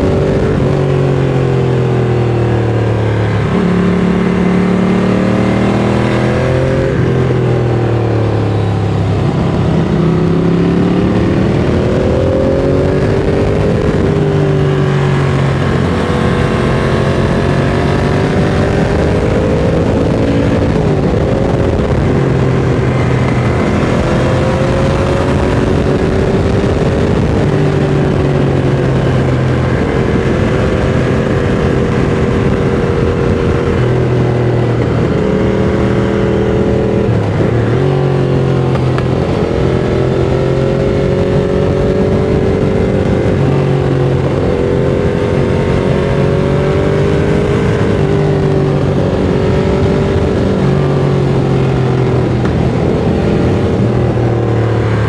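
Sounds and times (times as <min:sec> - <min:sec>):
motorcycle engine cruising: 0:00.0 - 0:55.0
wind and road noise: 0:00.0 - 0:55.0.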